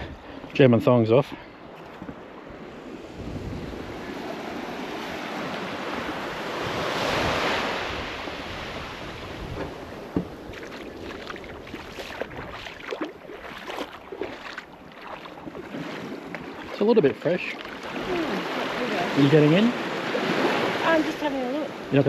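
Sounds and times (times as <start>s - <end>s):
small waves washing onto beach: 0.0s - 22.0s
wind on microphone: 2.0s - 14.3s.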